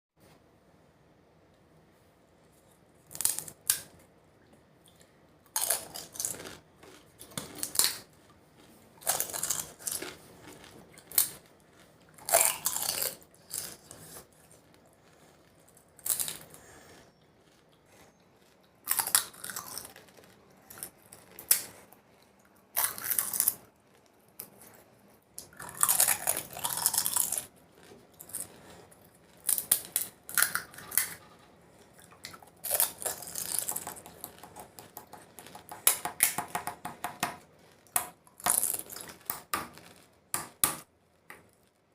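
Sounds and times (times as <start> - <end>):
crunching crisp shells: 3.0 - 4.0, 5.4 - 21.9, 22.7 - 24.6, 25.4 - 36.4, 37.6 - 40.6
chewing: 4.5 - 35.8.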